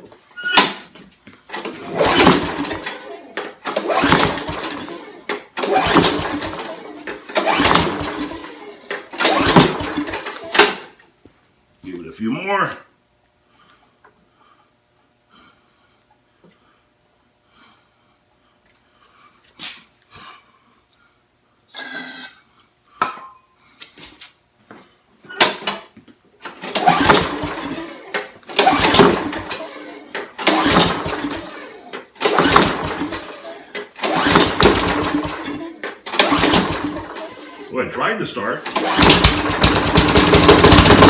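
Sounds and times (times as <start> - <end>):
lawn mower recoil pulls cranking: 1.5 - 10.9, 26.4 - 37.7, 38.6 - 41.0.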